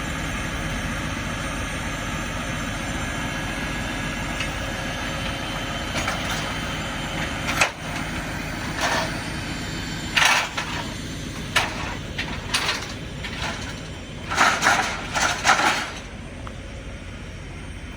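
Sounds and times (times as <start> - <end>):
truck engine running: 0.0 - 17.9
sharp bursts of unloading noise: 10.1 - 16.1.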